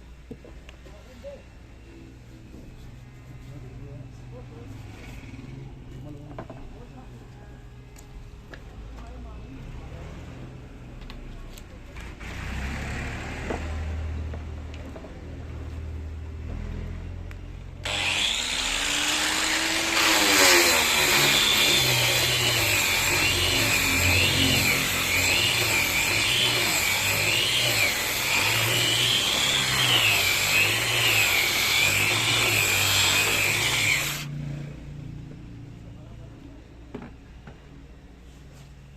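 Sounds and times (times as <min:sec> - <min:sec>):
electric power tool motor whine: 0:17.8 - 0:34.3.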